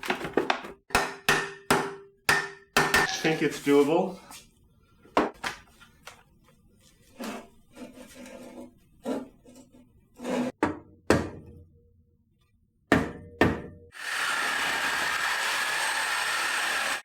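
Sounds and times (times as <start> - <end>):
sharp metal knocks: 0.9 - 3.2
power tool running: 13.9 - 17.0.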